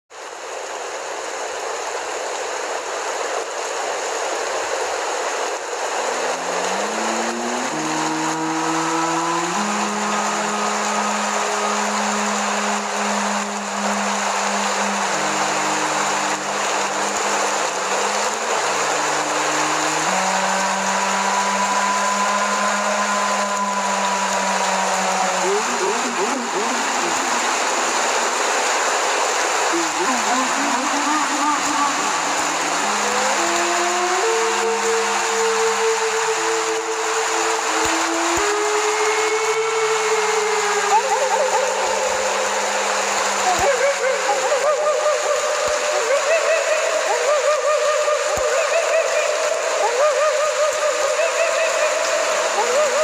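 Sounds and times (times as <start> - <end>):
steady rushing hiss: 0.2 - 53.0
low droning synth tone: 5.8 - 28.7
high held tones: 5.8 - 53.0.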